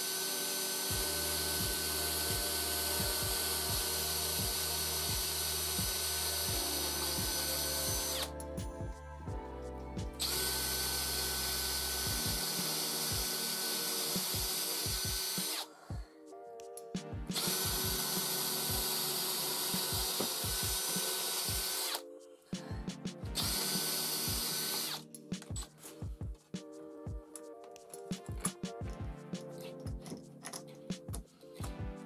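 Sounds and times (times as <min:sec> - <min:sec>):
power drill whine: 0:00.0 - 0:08.3, 0:10.2 - 0:15.7, 0:17.4 - 0:22.0, 0:23.5 - 0:25.0
music with steady beat: 0:00.7 - 0:32.0.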